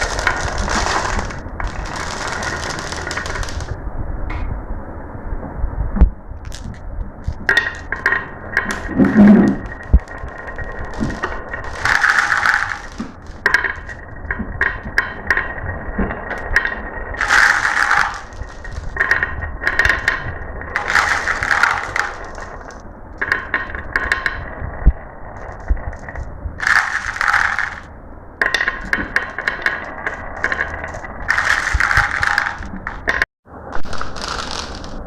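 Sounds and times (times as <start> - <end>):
marbles clattering down a track: 0.0 - 3.8, 6.4 - 35.0.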